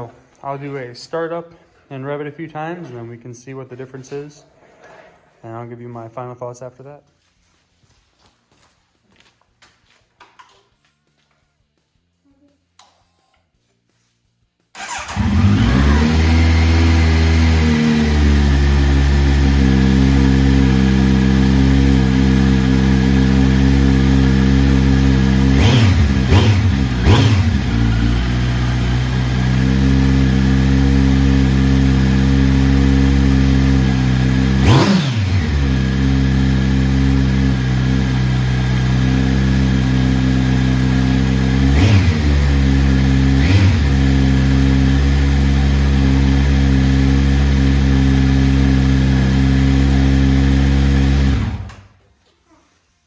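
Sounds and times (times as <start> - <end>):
motorcycle engine idling: 14.8 - 51.5.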